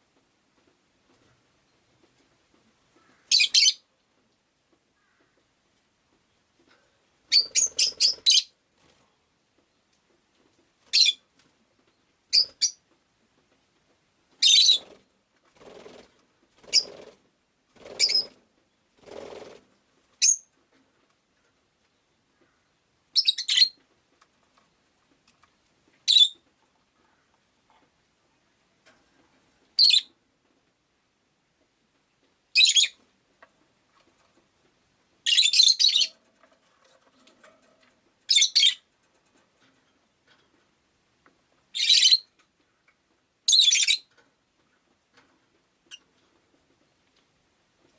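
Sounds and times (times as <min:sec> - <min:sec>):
lovebird high chirps: 0:03.3 - 0:03.8, 0:07.3 - 0:08.5, 0:10.9 - 0:11.2, 0:20.2 - 0:20.5, 0:23.1 - 0:23.8, 0:26.1 - 0:26.4, 0:29.8 - 0:30.1, 0:32.6 - 0:33.0, 0:35.2 - 0:36.1, 0:38.3 - 0:38.8, 0:41.7 - 0:42.3, 0:43.5 - 0:44.1.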